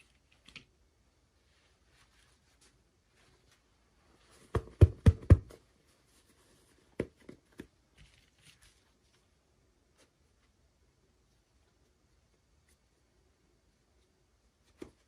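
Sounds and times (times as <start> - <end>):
faint plastic rustling: 0.0 - 4.5, 5.6 - 13.0.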